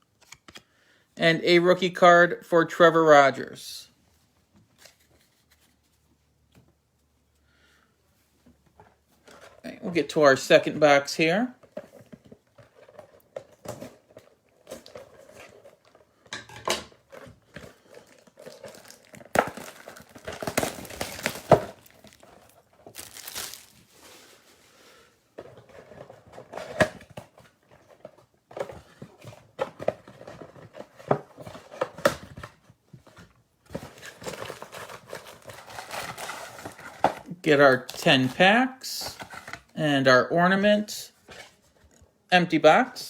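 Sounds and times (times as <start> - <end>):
plastic wrapping crinkling and tearing: 17.1 - 24.5, 33.8 - 38.4.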